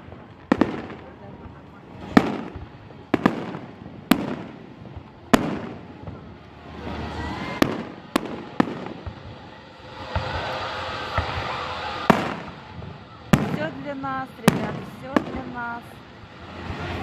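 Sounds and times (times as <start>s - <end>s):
fireworks bangs echoing: 0.0s - 17.0s.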